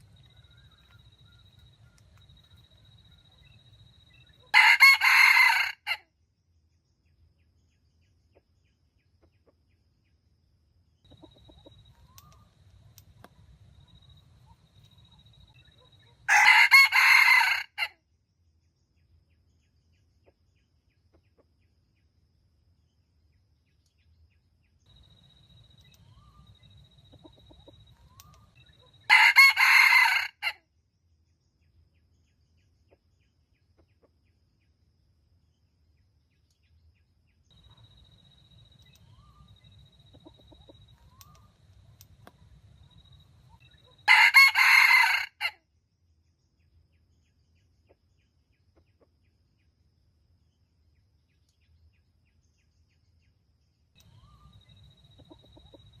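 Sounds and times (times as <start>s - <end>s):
rooster crowing: 4.5s - 6.0s, 16.3s - 17.9s, 29.1s - 30.6s, 44.0s - 45.6s.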